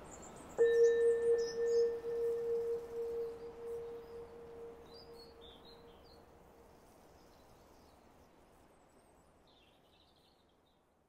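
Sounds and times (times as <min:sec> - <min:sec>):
soft background hiss: 0:00.0 - 0:10.4
ringing bowl-like tone: 0:00.6 - 0:05.8
faint bird chirps: 0:00.6 - 0:06.2.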